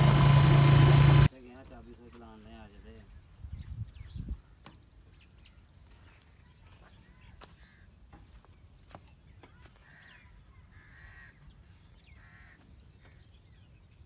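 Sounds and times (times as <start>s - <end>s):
low steady rumble: 0.0s - 1.3s
short harsh bird calls: 9.5s - 13.3s.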